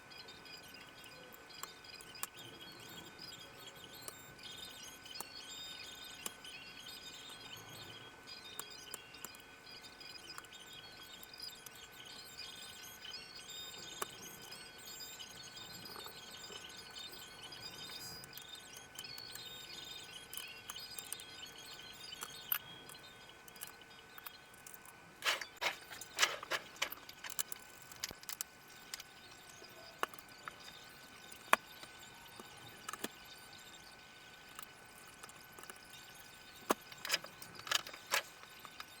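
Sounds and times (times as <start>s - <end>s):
faint steady high tone: 0.0s - 39.0s
hands handling plastic parts: 24.6s - 29.1s.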